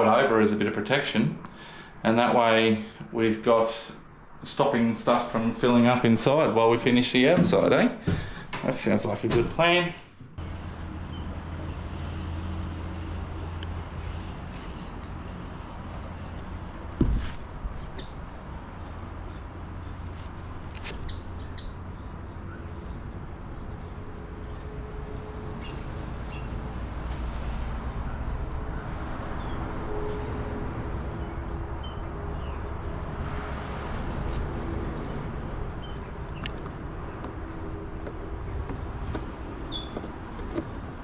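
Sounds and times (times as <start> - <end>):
faint bird chirps: 23.4 - 27.0
light clicks: 36.4 - 41.0.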